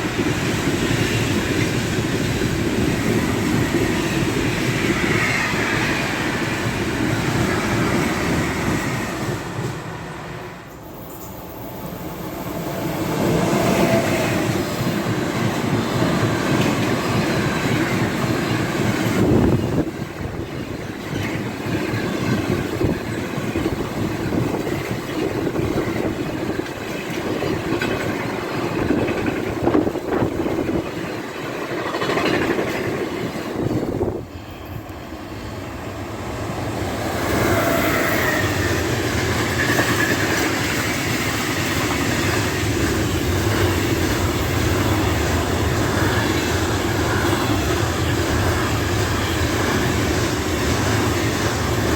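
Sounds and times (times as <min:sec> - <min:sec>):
freight train wheels rumbling on track: 0:00.0 - 0:51.9.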